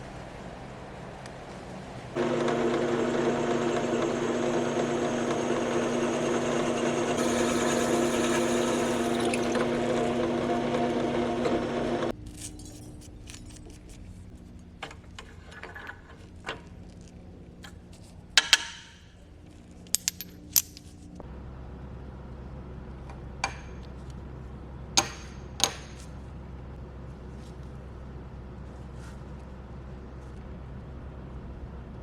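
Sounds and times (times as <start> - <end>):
power tool motor: 2.2 - 12.1
metal parts clinking: 12.2 - 21.2.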